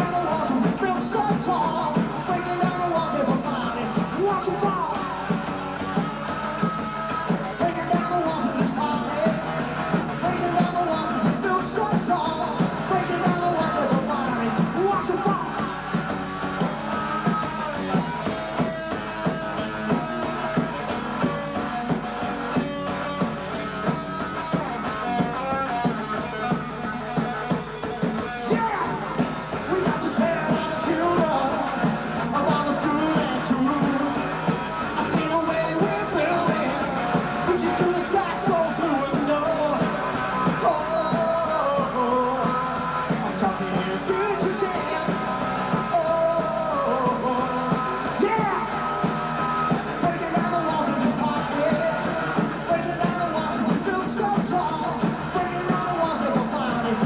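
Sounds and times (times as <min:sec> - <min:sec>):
person singing: 0:00.0 - 0:21.4, 0:23.8 - 0:57.0
electric guitar: 0:00.0 - 0:57.0
rock band playing: 0:00.0 - 0:57.0
steady drumbeat: 0:00.0 - 0:57.0.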